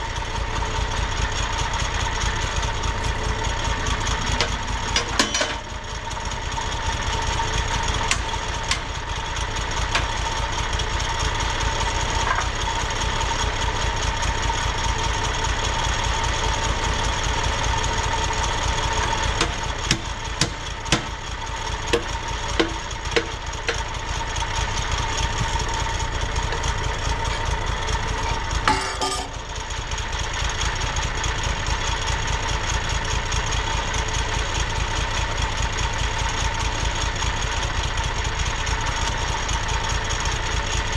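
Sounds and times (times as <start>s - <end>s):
engine running steadily: 0.0s - 40.9s
sharp clicks and knocks: 4.2s - 5.7s, 8.0s - 9.0s, 9.9s - 10.2s, 21.9s - 23.9s, 28.2s - 29.4s.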